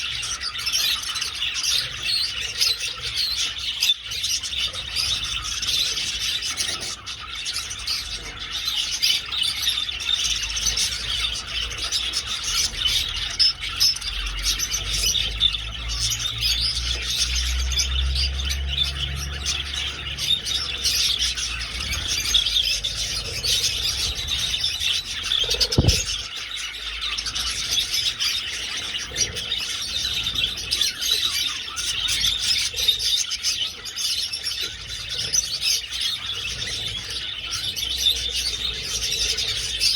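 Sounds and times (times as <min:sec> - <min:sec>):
budgerigars chattering and chirping: 0:00.0 - 0:39.9
single knock: 0:25.5 - 0:26.2.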